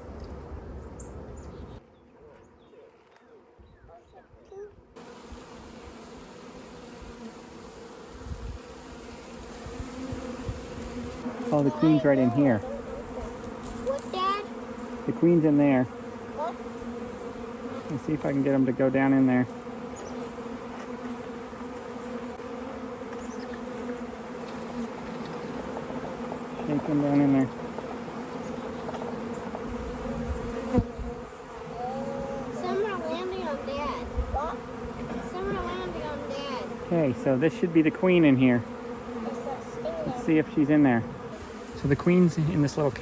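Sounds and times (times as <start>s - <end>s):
bees buzzing: 5.0s - 43.0s.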